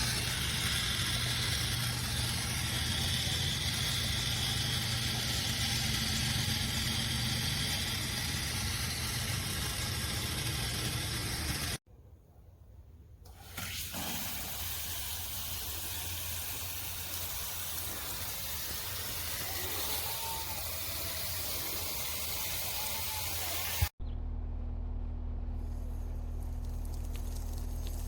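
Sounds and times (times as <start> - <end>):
water spraying hiss: 0.0 - 11.8, 13.3 - 23.9.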